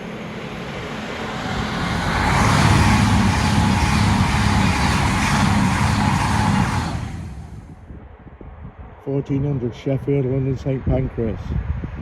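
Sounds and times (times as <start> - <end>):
diesel train passing: 0.0 - 8.2.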